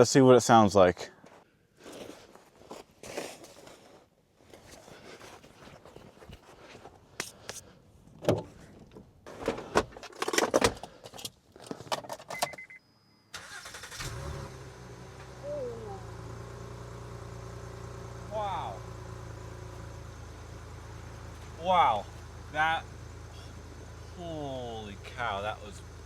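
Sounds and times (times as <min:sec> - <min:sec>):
car engine cranking and idling: 0:13.3 - 0:26.0.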